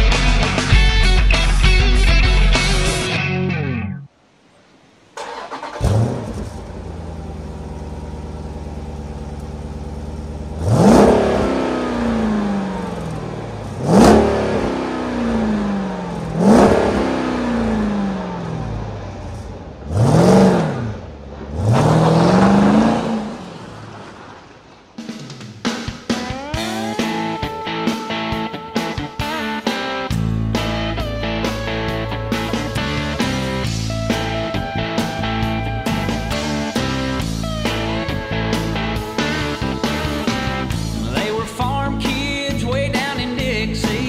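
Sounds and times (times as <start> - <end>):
car engine starting and idling: 0.0 - 44.0
car engine revving: 5.1 - 44.0.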